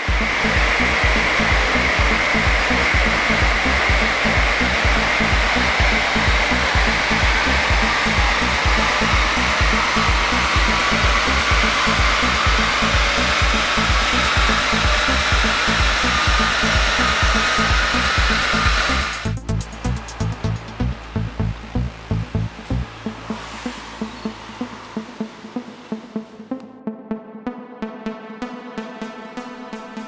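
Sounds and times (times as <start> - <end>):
music with thumping beat: 0.0 - 23.5
diesel engine on a dynamometer: 0.0 - 26.4.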